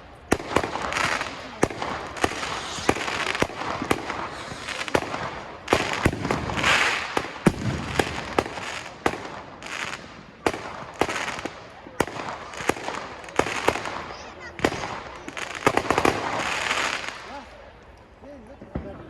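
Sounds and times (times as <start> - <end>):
fireworks hissing: 0.0 - 17.6
fireworks bangs: 0.0 - 17.7, 18.6 - 19.0.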